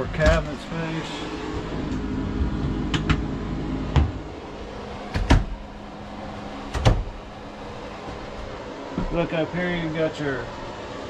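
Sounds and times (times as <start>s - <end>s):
steady hum: 0.0s - 11.0s
cabinet doors knocking shut: 5.1s - 5.6s, 6.7s - 7.2s.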